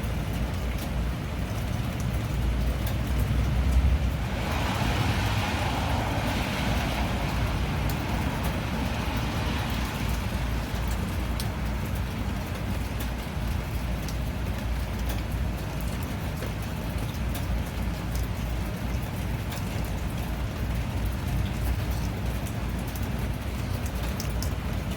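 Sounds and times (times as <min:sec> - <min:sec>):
steady rain falling: 0:00.0 - 0:24.9
rushing noise: 0:03.2 - 0:12.1.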